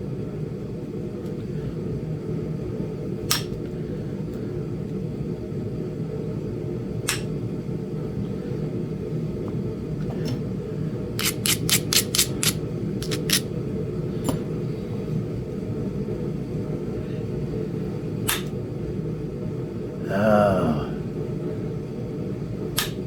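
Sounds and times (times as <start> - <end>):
hammer tapping stone punch: 11.2 - 13.4.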